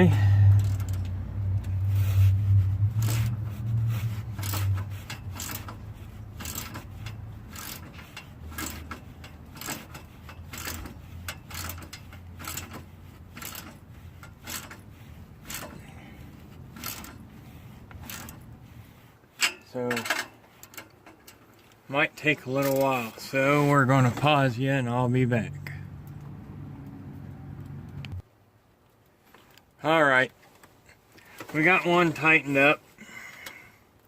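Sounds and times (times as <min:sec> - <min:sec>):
low hum: 0:00.0 - 0:19.0
wrench metallic clicks and scrapes: 0:00.0 - 0:24.4.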